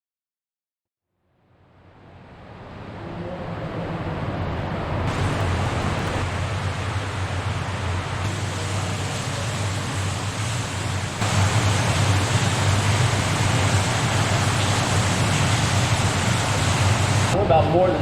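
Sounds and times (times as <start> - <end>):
water rushing in tunnel: 1.8 - 17.4.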